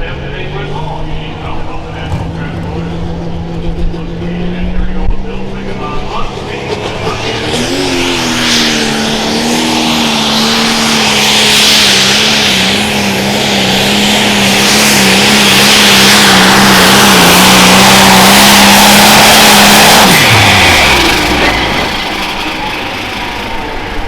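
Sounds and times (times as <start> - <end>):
diesel engine at full throttle: 0.0 - 24.0.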